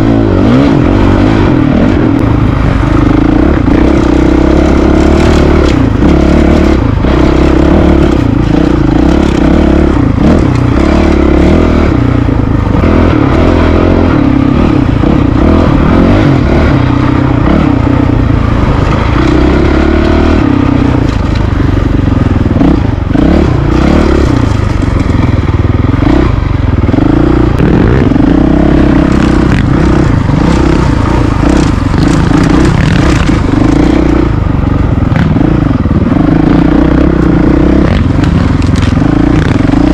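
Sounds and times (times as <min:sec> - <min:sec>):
motorcycle engine revving: 0:00.0 - 0:39.9
bike clattering and scraping: 0:17.4 - 0:27.2, 0:29.0 - 0:35.4, 0:37.8 - 0:39.9.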